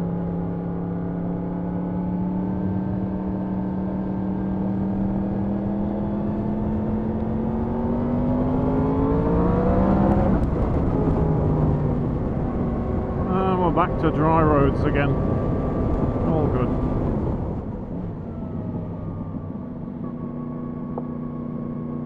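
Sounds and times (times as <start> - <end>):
motorcycle engine accelerating: 0.0 - 22.0
road and wind noise: 0.0 - 22.0.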